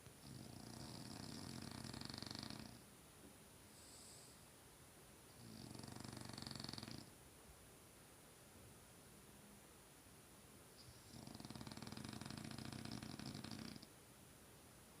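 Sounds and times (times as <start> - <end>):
dog snoring: 0.2 - 2.8, 5.4 - 7.1, 10.8 - 13.9
soft breath: 3.6 - 4.6.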